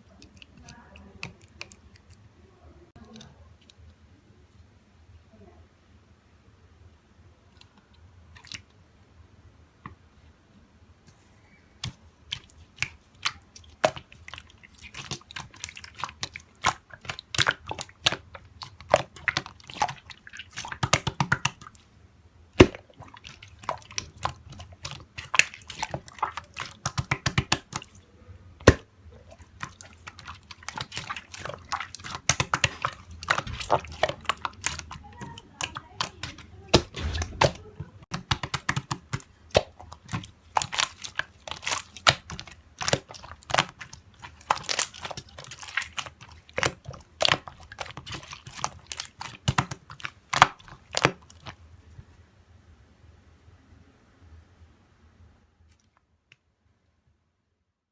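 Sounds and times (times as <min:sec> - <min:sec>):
slime squished by hand: 0:11.8 - 0:21.9, 0:22.5 - 0:51.7.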